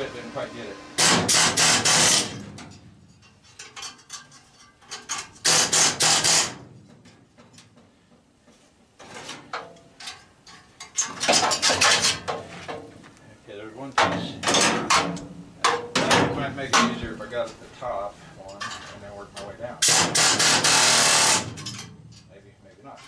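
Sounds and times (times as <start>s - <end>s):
air chisel hammering sheet metal: 1.0s - 2.5s, 5.4s - 6.6s, 19.8s - 21.8s
metal clinks and knocks: 2.5s - 5.5s, 9.0s - 12.5s, 21.6s - 23.0s.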